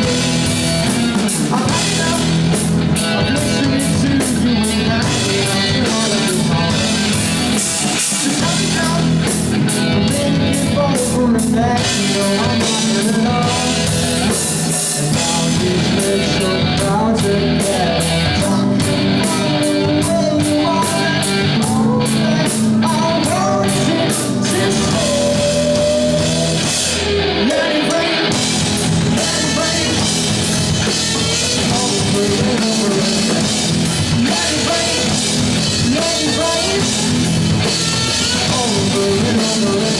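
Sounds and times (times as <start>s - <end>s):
drum kit beat with cymbals: 0.0s - 39.9s
electric guitar: 0.0s - 39.9s.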